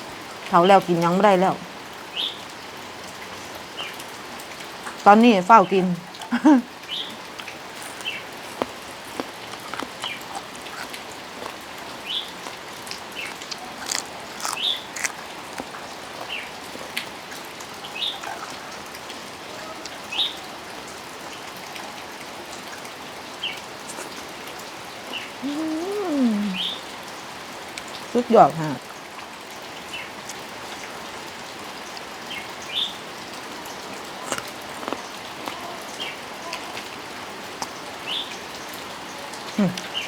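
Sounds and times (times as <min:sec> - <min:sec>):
sharp drips and ticks: 0:00.0 - 0:25.3, 0:26.6 - 0:40.0
steady rain falling: 0:00.0 - 0:40.0.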